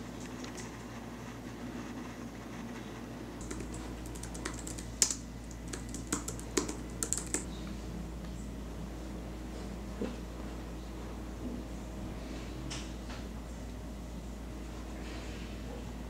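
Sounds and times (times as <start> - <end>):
laptop keyboard typing: 3.4 - 7.5.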